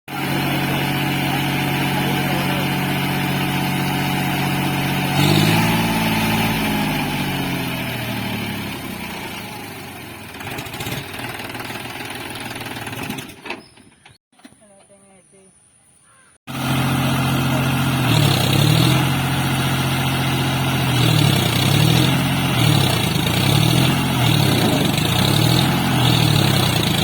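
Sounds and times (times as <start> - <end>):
tractor engine revving: 0.1 - 13.6, 16.5 - 27.0.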